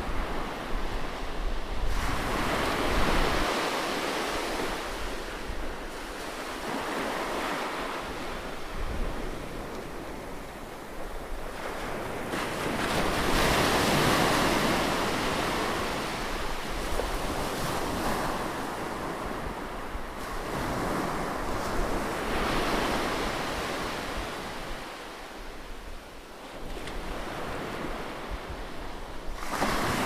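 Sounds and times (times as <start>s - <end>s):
ocean waves breaking: 0.0s - 25.4s.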